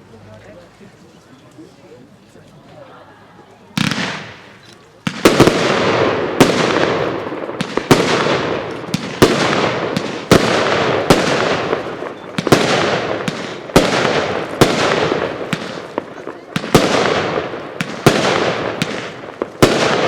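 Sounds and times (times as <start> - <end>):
firework bangs: 3.8 - 20.0.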